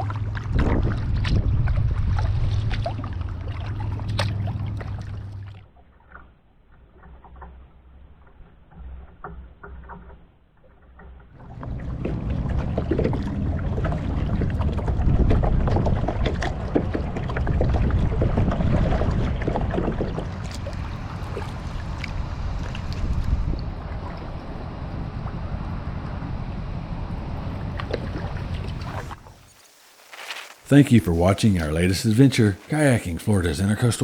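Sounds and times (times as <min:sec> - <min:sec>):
wind buffeting microphone: 0:00.0 - 0:05.4, 0:11.4 - 0:29.5
water splashing around a kayak: 0:00.0 - 0:33.7.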